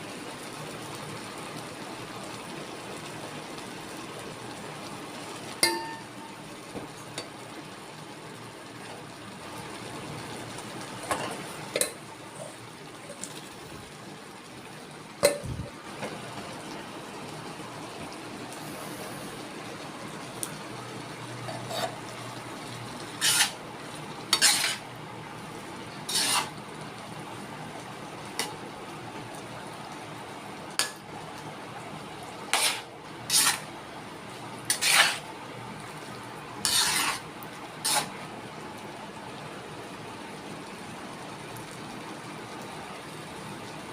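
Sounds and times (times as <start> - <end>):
steady kitchen hiss: 0.0 - 43.9
utensils clinking on dishes: 5.6 - 6.1.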